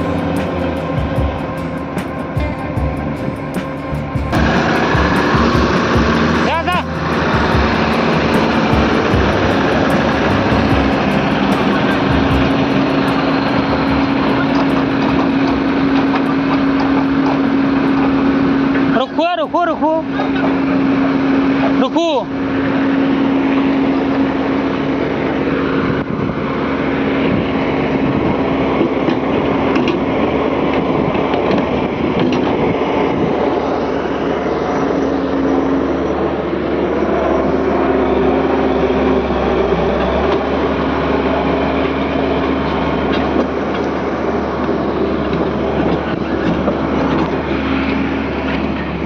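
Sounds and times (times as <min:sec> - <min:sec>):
steady tone: 0:00.0 - 0:28.3
excavator engine and hydraulics: 0:00.0 - 0:49.0.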